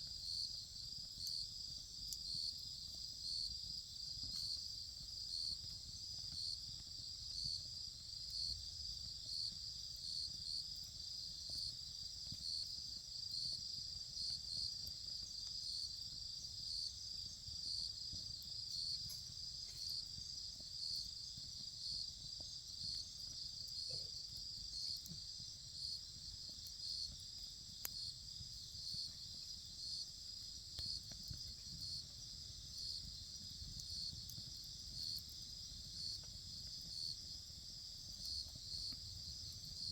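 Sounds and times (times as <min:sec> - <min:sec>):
insects chirping: 0:18.3 - 0:39.9.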